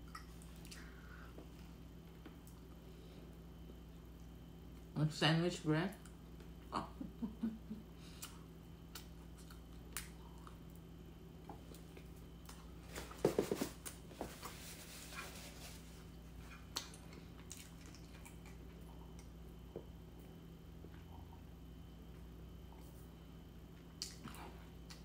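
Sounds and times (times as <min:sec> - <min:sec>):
person chewing: 0:08.1 - 0:12.7, 0:16.4 - 0:19.9.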